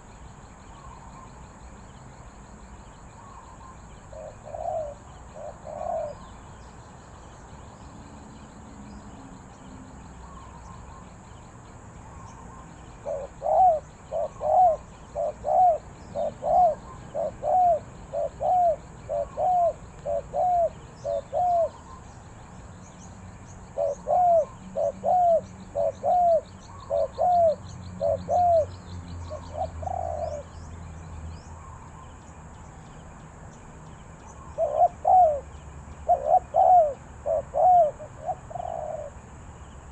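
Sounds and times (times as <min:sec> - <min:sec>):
dove cooing: 0:03.2 - 0:06.3, 0:13.0 - 0:22.0, 0:23.7 - 0:30.5, 0:34.4 - 0:39.2.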